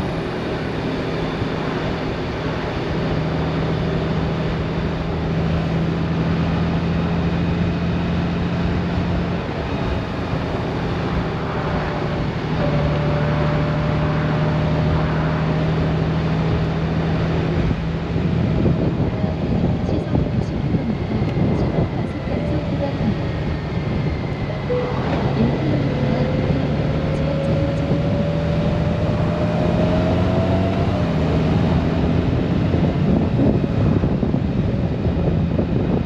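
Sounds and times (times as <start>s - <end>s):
motorcycle engine hum: 0.0s - 36.0s
wind and road rush: 0.0s - 36.0s.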